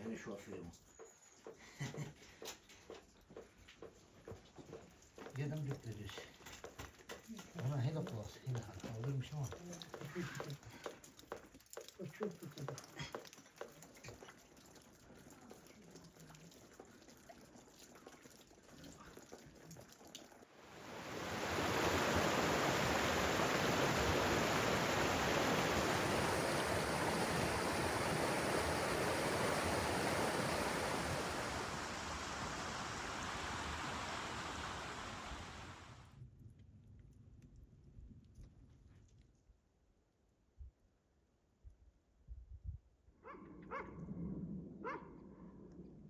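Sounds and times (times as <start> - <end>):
running water rushing: 7.3 - 36.1.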